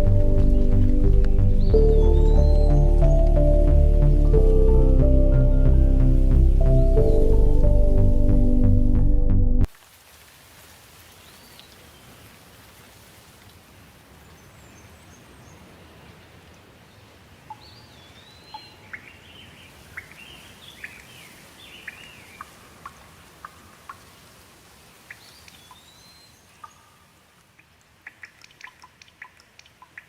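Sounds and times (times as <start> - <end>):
birds chirping and whistling: 0.0 - 4.4.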